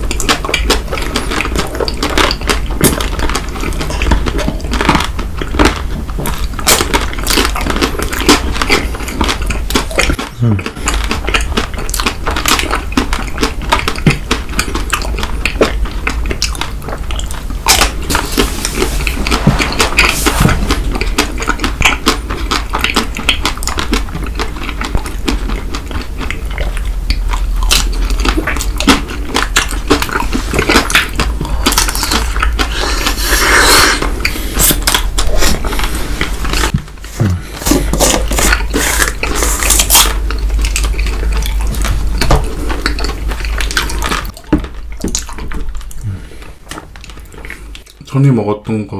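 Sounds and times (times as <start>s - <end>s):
chewing chocolate bars: 0.0s - 48.3s.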